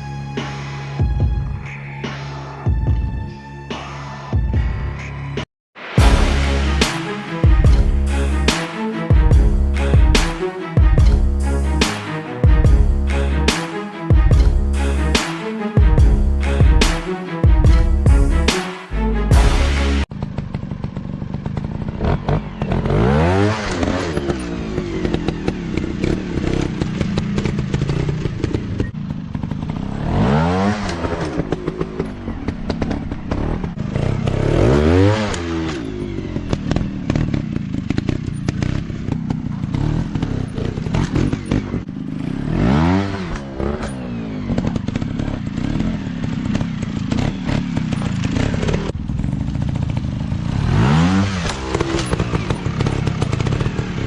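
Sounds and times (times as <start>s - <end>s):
motorcycle engines revving: 19.4s - 54.0s.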